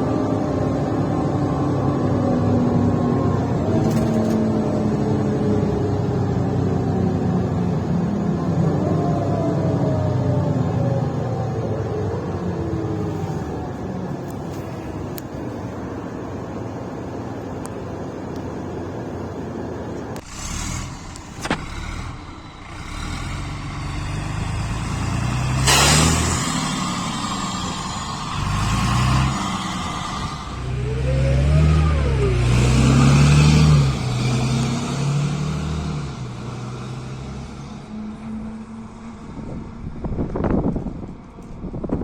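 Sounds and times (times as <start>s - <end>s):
bus diesel engine accelerating: 0.0s - 42.0s
sharp burst of noise: 25.2s - 31.8s.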